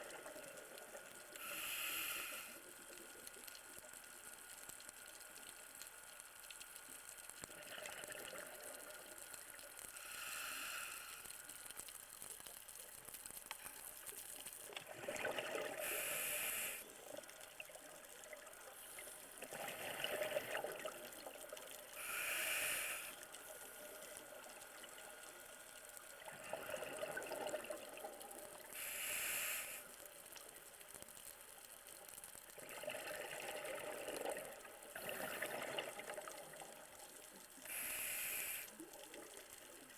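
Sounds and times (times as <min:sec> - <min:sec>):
regulator inhale hiss: 0:01.3 - 0:02.8, 0:09.9 - 0:11.6, 0:15.8 - 0:17.0, 0:22.0 - 0:24.2, 0:28.7 - 0:30.1, 0:37.6 - 0:38.9
exhaled bubbles: 0:07.5 - 0:09.0, 0:14.7 - 0:23.2, 0:26.2 - 0:28.8, 0:32.6 - 0:37.0.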